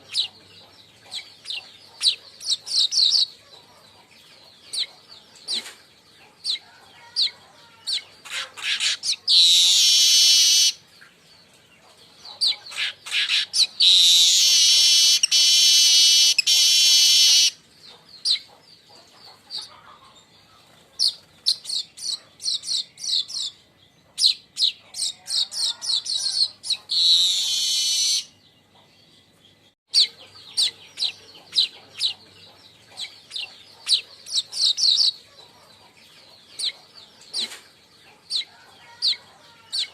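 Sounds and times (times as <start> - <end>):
buzzing wheezy bird song: 7.2 - 10.8, 12.4 - 17.6, 21.7 - 28.4.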